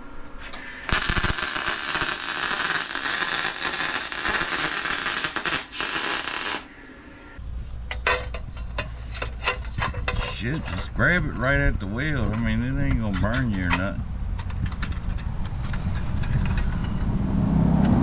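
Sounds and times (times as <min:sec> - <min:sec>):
arc welder crackling hiss: 0:00.4 - 0:07.4.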